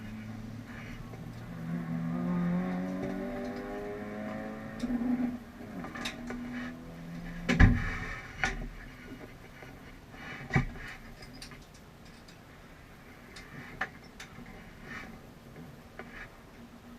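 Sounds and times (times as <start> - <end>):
loud thump: 7.5 - 8.0.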